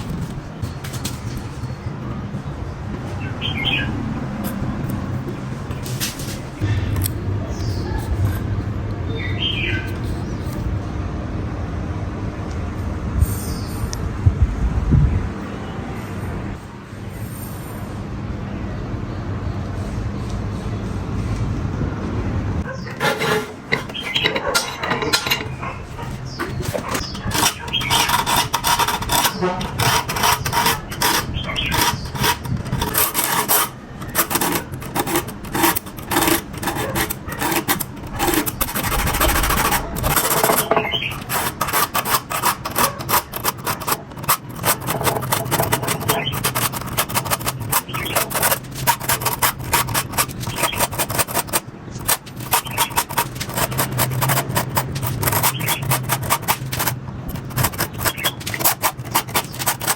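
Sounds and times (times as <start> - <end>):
hand filing strokes: 26.1 - 59.9.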